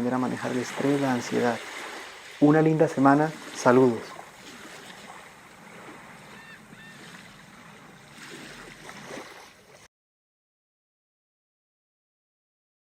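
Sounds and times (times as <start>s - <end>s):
sea surf washing: 0.0s - 9.9s.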